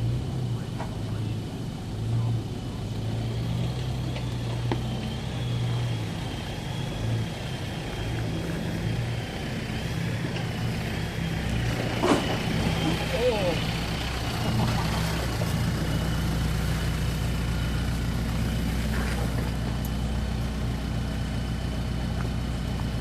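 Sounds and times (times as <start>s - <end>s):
vehicle engine running low: 0.0s - 23.0s.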